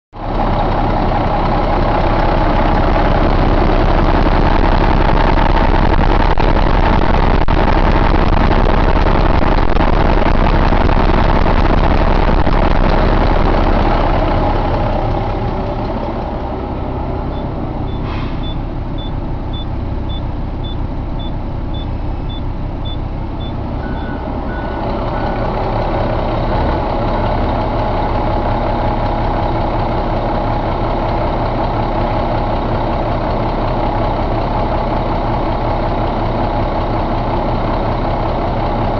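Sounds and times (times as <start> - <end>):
diesel engine running: 0.1 - 38.9
faint rapid beeping: 17.3 - 25.4.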